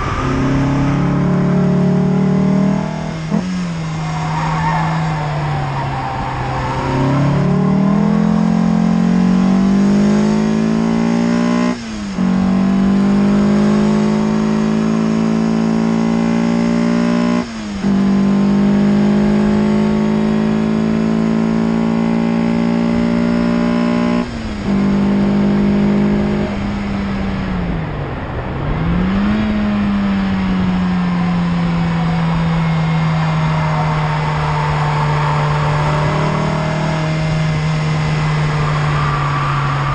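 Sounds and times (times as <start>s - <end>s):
car engine revving hard: 0.0s - 27.8s, 28.7s - 39.9s.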